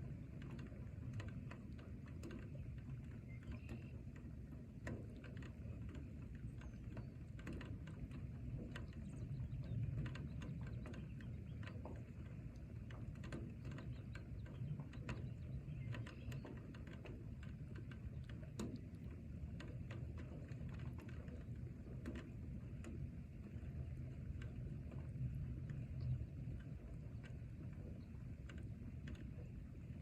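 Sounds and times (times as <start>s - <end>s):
low steady rumble: 0.0s - 30.0s.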